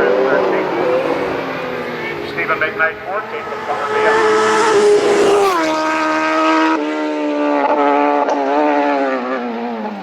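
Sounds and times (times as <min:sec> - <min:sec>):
racing motorcycle passing by: 0:00.0 - 0:10.0.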